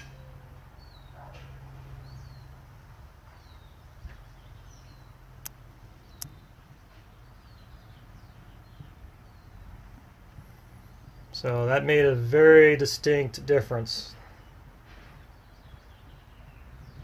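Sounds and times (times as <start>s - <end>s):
small birds chirping: 0.0s - 17.0s
sharp clicks: 5.4s - 6.4s.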